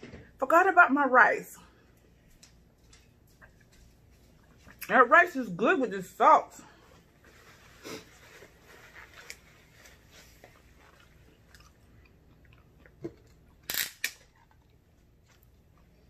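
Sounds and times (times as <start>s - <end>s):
faint chewing: 7.7s - 16.0s.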